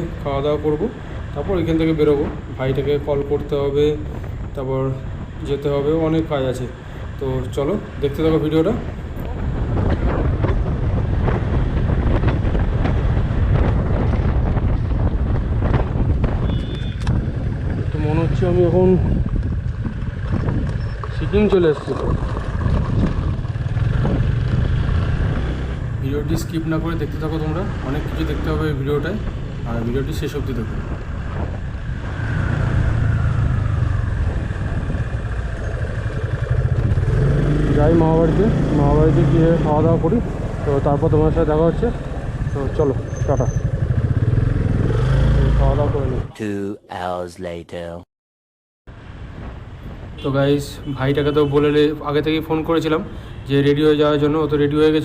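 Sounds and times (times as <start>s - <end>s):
wind buffeting microphone: 0.0s - 46.3s
motorcycle engine running: 9.3s - 26.2s, 30.9s - 46.1s.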